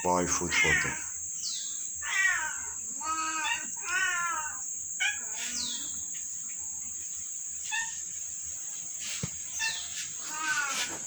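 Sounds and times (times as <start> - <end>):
chirping animal calls: 0.0 - 7.0, 9.5 - 11.0
insect buzzing: 0.0 - 11.0.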